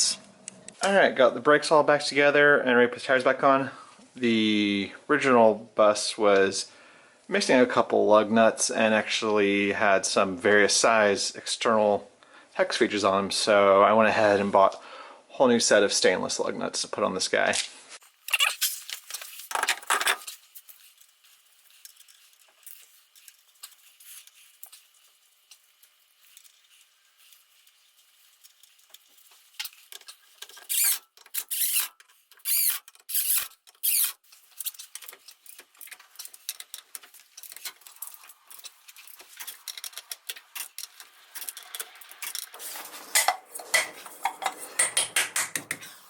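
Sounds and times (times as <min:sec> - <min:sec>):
light metal clicks and scrapes: 0:18.9 - 0:45.0
short rasping bursts: 0:30.6 - 0:34.3.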